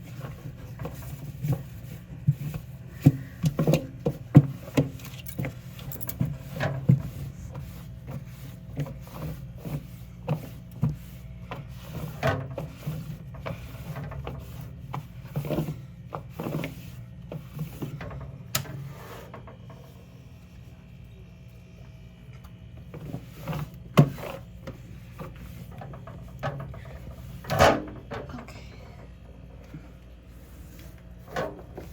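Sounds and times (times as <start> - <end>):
steady low hum: 0.0 - 31.9
hands knocking and rubbing in fridge: 0.1 - 18.3.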